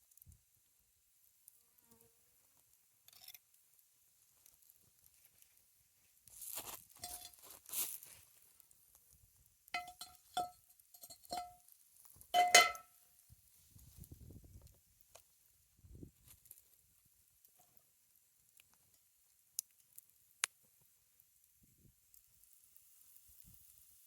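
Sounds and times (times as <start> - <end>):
utensil scraping cookware: 7.0 - 7.4
light ringing clinks: 7.0 - 7.5, 9.8 - 11.6, 12.3 - 12.9.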